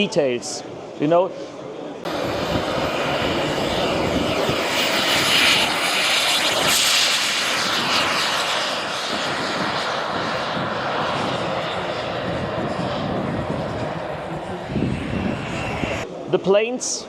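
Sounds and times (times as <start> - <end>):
model jet turbine whine: 2.1 - 16.4.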